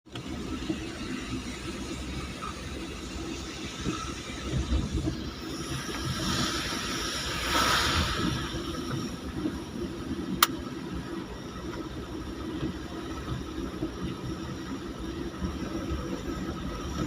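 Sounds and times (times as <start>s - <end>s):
vehicle rumble: 0.0s - 17.0s
hiss: 0.6s - 10.4s.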